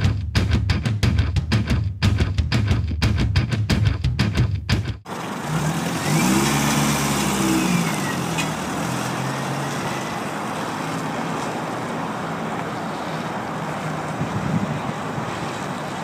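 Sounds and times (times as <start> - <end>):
vehicle engine revving: 5.0 - 16.0
wind on microphone: 13.9 - 16.0.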